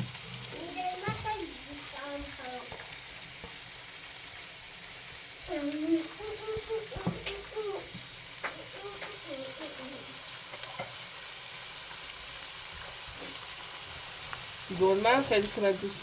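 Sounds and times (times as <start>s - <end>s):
food sizzling in a pan: 0.0s - 16.0s
utensil clicking against pan: 8.4s - 9.3s.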